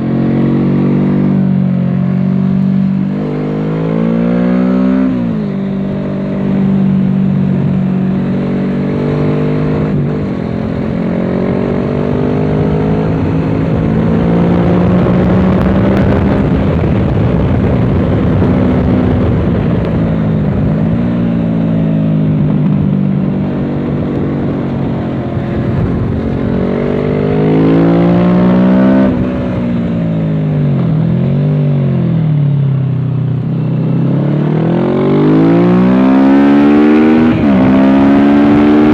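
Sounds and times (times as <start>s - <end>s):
rushing wind noise: 0.0s - 32.2s, 32.8s - 38.9s
motorcycle engine revving: 0.0s - 38.9s.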